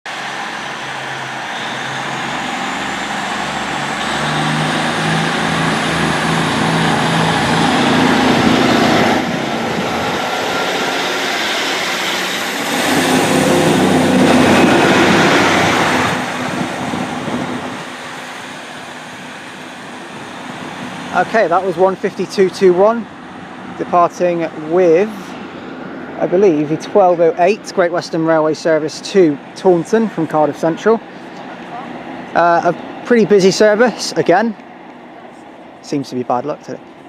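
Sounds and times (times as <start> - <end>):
diesel train engine climbing: 0.1 - 37.0
faint rising whistle: 1.3 - 4.6.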